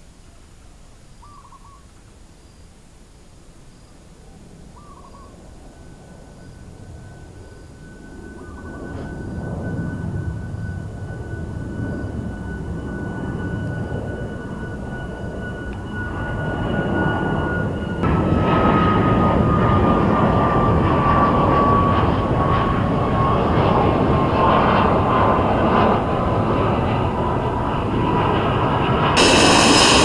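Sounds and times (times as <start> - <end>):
jet engines roaring: 11.4 - 30.0
jet fan whine: 23.6 - 30.0.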